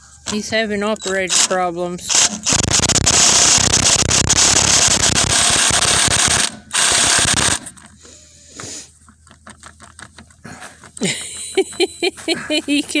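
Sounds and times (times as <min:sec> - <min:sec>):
socket wrench ratcheting: 0:01.0 - 0:07.9.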